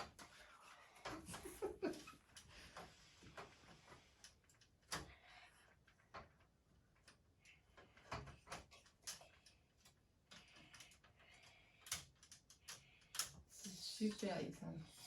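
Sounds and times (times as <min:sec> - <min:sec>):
toy train pieces clicking: 0:07.4 - 0:14.2.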